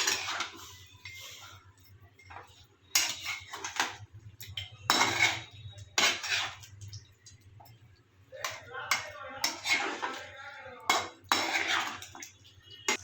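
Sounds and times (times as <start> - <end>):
metal spoon scraping cooking pan: 0.0 - 13.0.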